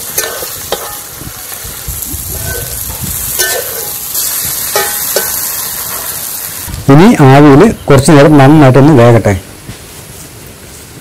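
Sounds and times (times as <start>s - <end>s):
chicken sizzling in a pot: 0.0s - 8.0s.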